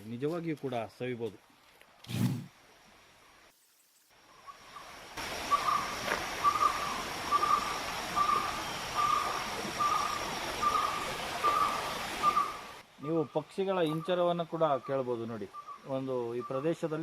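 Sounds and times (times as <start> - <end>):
stream running over stones: 5.0 - 12.8
bird calling: 5.4 - 17.0.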